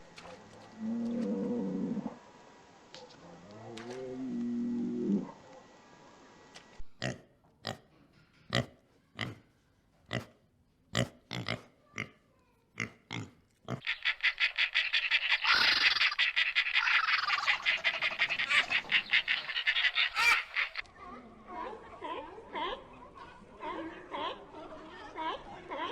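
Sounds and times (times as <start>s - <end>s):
fast pulsed animal chatter: 13.8s - 20.8s.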